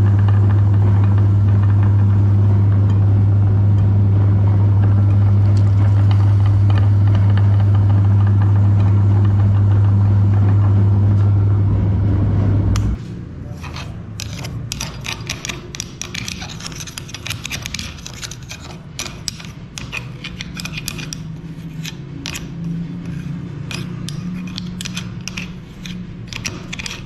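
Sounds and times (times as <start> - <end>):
scraping and crackling clicks: 13.6 - 27.0.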